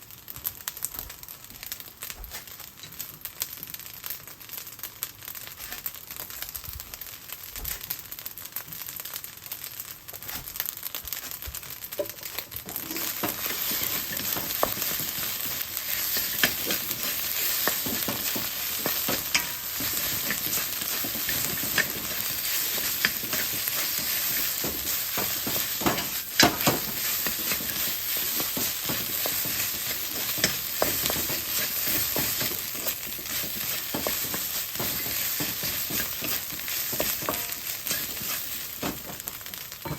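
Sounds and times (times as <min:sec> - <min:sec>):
rice sizzling in a pan: 0:00.0 - 0:39.9
spatula scraping a pan: 0:05.5 - 0:05.9, 0:12.0 - 0:39.9.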